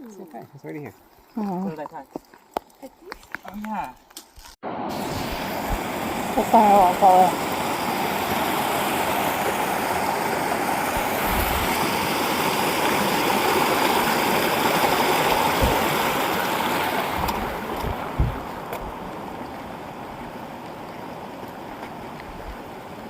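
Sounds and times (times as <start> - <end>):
creek water rushing: 4.6 - 23.0
low thumps: 15.4 - 16.2, 17.1 - 19.1.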